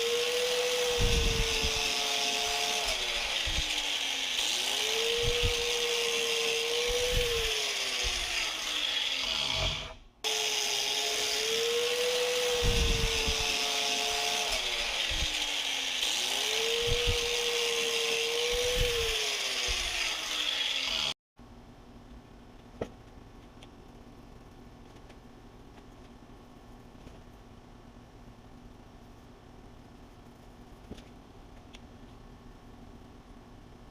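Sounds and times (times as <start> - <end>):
power tool motor spinning: 0.0 - 21.2.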